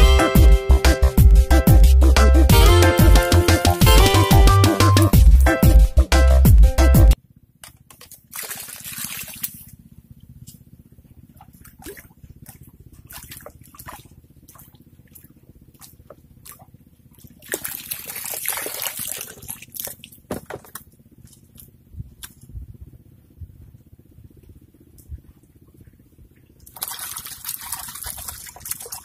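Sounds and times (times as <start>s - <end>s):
water sloshing and dripping: 7.8s - 9.8s, 11.3s - 22.4s, 26.6s - 29.0s
water splashing: 8.0s - 9.7s, 11.3s - 21.6s, 26.6s - 29.0s.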